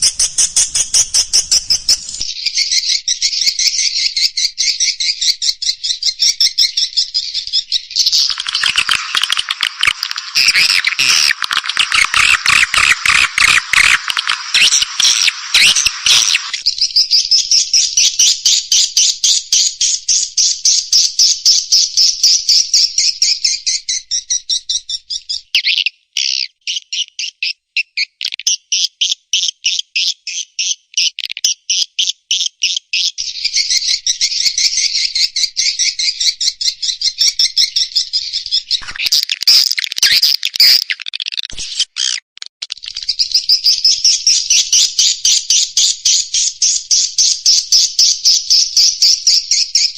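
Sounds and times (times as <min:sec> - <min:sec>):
swiftlet twittering chirps: 0:00.0 - 0:02.4, 0:08.0 - 0:16.6.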